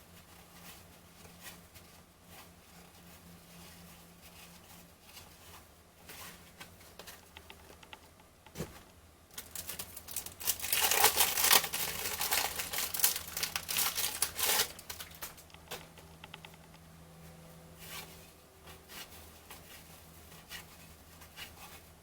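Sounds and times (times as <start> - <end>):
cellophane wrapper crinkling and tearing: 9.3 - 15.8.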